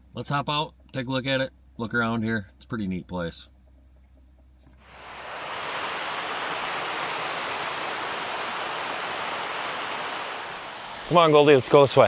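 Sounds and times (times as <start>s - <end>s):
water rushing over a dam: 4.8s - 12.0s.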